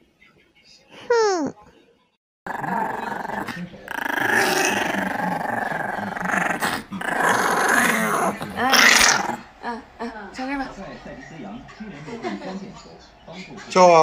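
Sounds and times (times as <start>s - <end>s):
dog growling: 2.5s - 9.8s.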